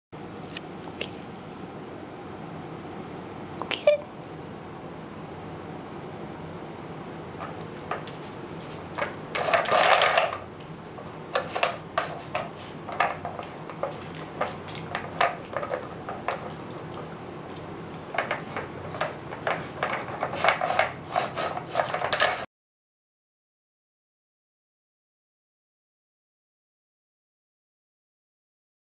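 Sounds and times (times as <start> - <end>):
plastic toy pieces clattering: 9.0 - 10.4.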